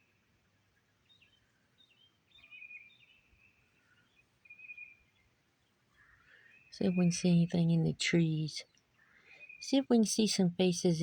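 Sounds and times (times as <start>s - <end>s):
faint bird chirps: 0.8s - 7.9s, 8.6s - 10.1s.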